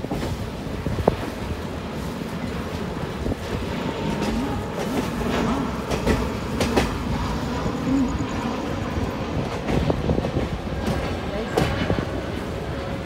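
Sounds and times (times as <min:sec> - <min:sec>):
train wheels clicking over rail joints: 0:02.5 - 0:07.9, 0:08.9 - 0:12.5.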